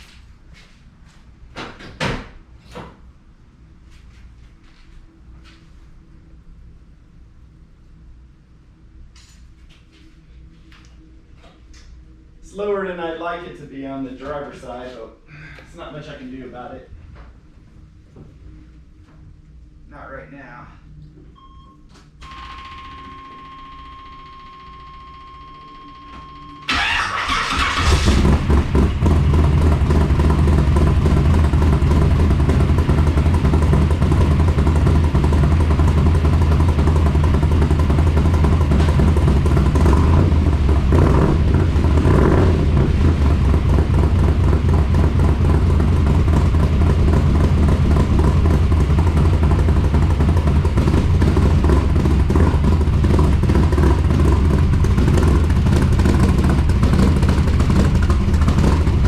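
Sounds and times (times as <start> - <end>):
car engine cranking: 26.7 - 59.0
car engine idling: 26.7 - 59.0.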